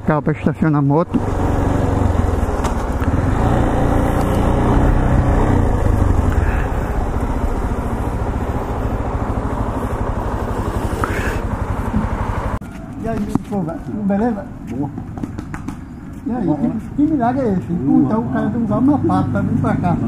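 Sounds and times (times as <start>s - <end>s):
motorcycle engine running: 1.1s - 16.1s.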